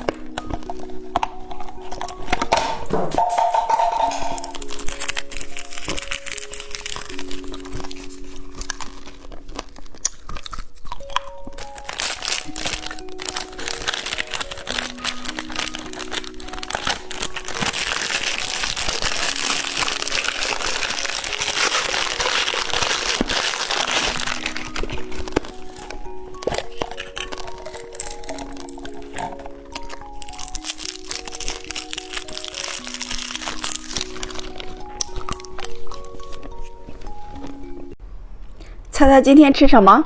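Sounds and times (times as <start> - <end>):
background music with simple melody: 0.0 - 38.0
candy wrapper crinkling: 0.0 - 38.9.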